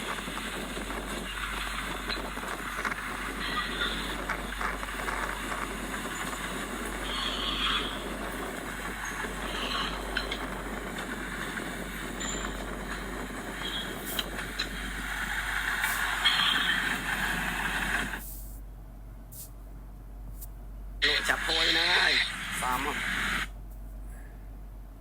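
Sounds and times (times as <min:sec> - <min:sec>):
bulldozer running: 0:00.0 - 0:18.6
high machine squeals: 0:01.1 - 0:15.0, 0:16.1 - 0:17.2.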